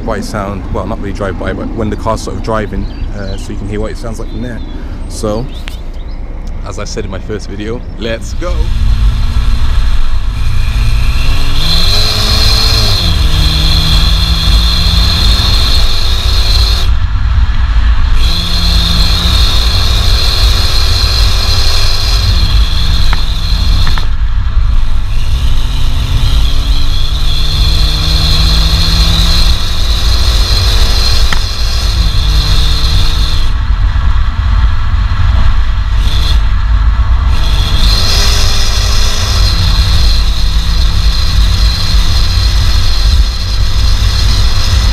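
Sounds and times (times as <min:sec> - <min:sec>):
car engine accelerating: 0:08.1 - 0:44.9.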